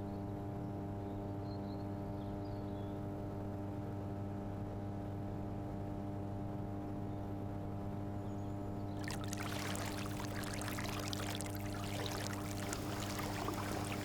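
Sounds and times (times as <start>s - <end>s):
steady low hum: 9.0s - 14.0s
water splashing and trickling: 9.0s - 14.0s.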